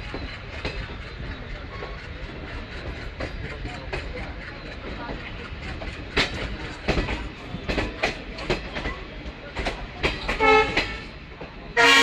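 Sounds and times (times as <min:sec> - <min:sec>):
train running rumble: 0:00.0 - 0:12.0
train wheels clicking over rail joints: 0:00.0 - 0:12.0
train horn toot: 0:10.4 - 0:11.1, 0:11.8 - 0:12.0.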